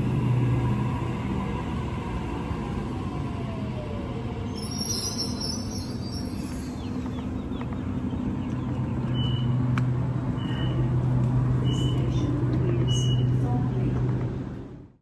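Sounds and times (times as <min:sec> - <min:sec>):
electric train humming: 0:00.0 - 0:13.7.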